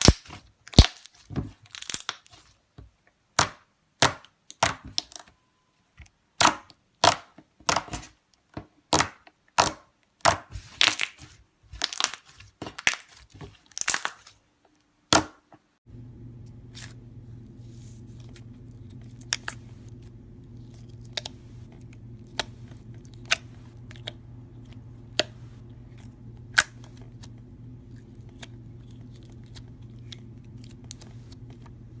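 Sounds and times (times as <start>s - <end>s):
slime crackling and popping: 0.0s - 2.3s, 11.8s - 14.3s
steady low hum: 15.8s - 32.0s.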